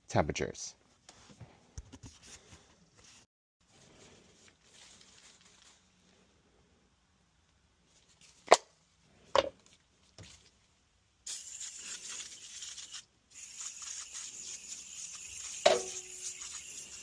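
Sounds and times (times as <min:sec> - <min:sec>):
steady hiss: 0:11.2 - 0:17.0.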